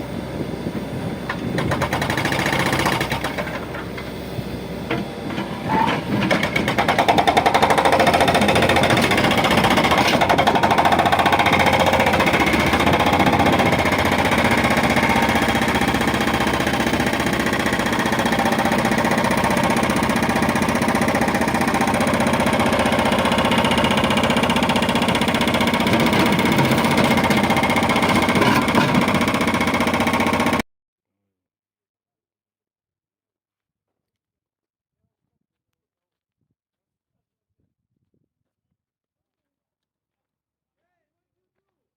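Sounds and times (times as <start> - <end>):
diesel engine chugging: 0.0 - 30.6.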